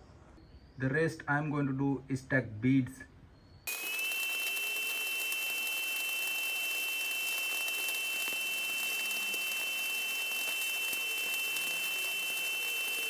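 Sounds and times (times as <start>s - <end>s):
welding arc crackling hiss: 3.7s - 13.0s.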